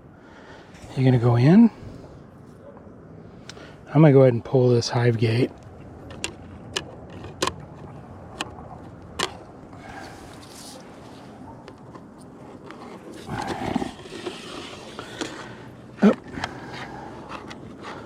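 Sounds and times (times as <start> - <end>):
plastic scraping: 9.2 - 18.0.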